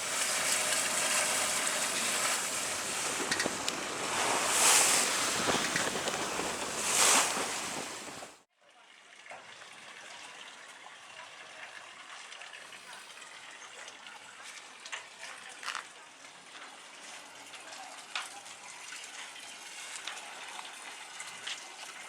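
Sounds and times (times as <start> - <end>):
sea water splashing on hull: 0.0 - 8.4.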